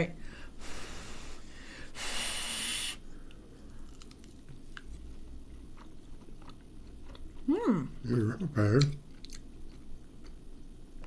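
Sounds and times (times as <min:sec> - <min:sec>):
person chewing: 0:03.2 - 0:11.0.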